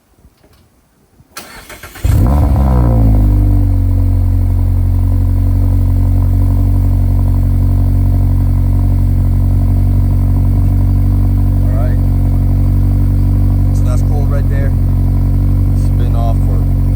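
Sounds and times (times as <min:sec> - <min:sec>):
car starter cranking: 0:01.4 - 0:03.0
car engine flaring and idling: 0:01.4 - 0:16.9.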